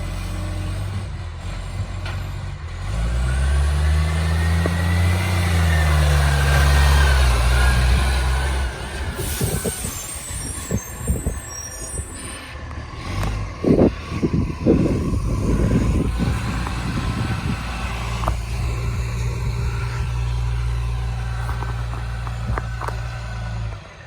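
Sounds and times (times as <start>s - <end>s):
truck engine drone: 0.0s - 24.0s
air hissing: 7.4s - 12.6s.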